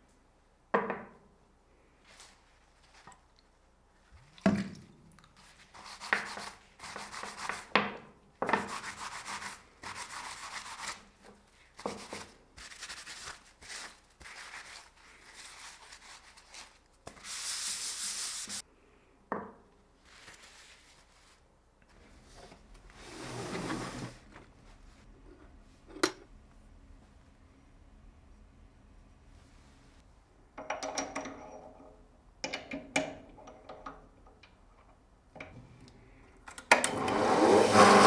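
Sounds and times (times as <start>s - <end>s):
hand rubbing a workpiece: 17.1s - 18.6s.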